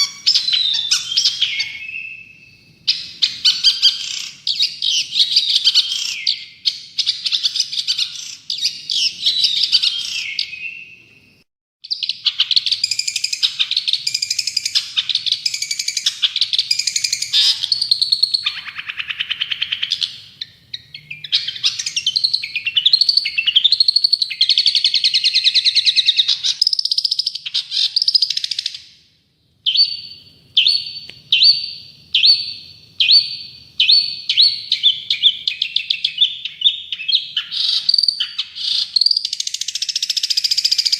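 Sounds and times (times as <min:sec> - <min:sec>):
bird singing scratchy chatter: 0:00.0 - 0:11.0.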